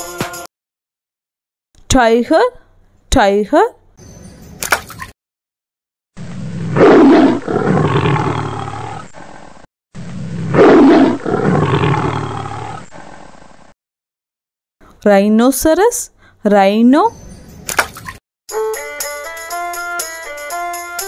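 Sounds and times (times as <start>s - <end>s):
tiger roaring: 6.2s - 13.6s.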